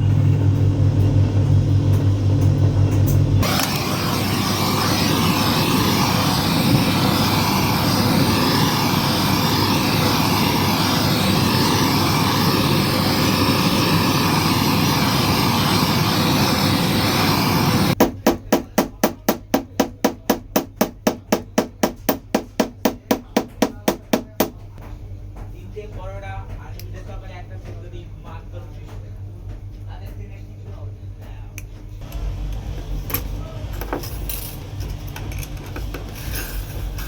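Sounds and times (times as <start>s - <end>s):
electric arc welding crackle: 3.1s - 18.0s, 32.0s - 37.0s.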